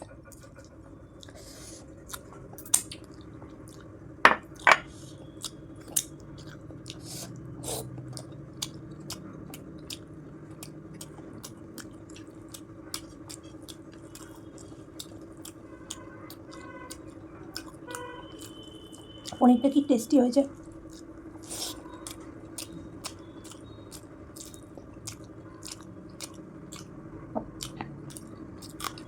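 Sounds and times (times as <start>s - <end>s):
person chewing: 0.0s - 19.4s, 20.6s - 29.0s
wet mouth clicks and smacks: 2.1s - 3.8s.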